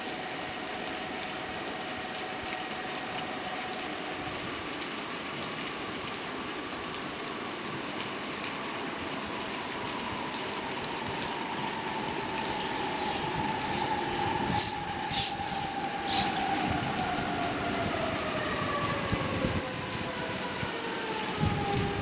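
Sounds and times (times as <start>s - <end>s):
train rolling noise: 10.2s - 20.8s.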